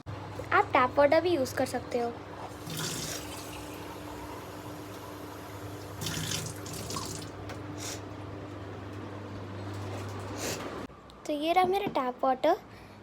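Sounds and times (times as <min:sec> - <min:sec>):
water running from a tap: 0:02.5 - 0:07.5.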